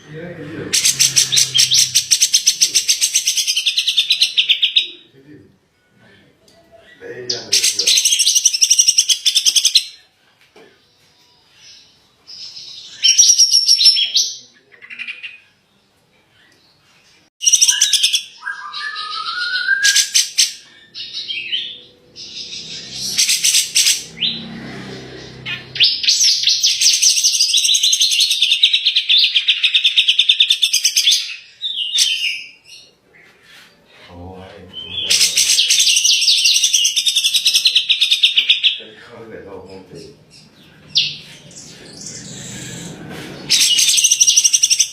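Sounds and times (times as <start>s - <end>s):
songbird trilling: 0.7s - 5.0s, 17.4s - 24.4s, 34.7s - 38.8s.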